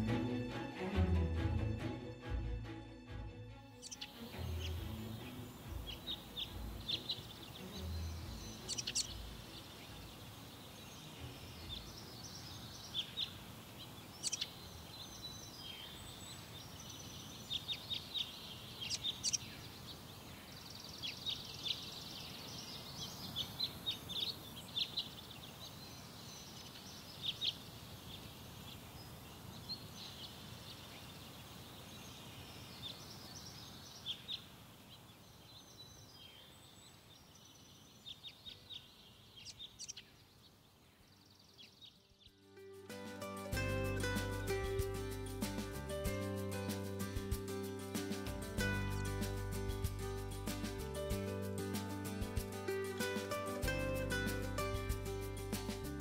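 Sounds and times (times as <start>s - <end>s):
low music: 0.0s - 10.1s, 42.4s - 56.0s
birds chirping: 3.7s - 56.0s
faint hiss: 3.9s - 56.0s.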